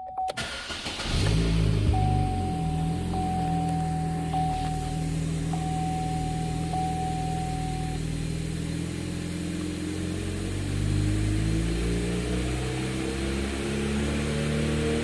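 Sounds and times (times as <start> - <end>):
car engine idling: 0.3 - 11.5.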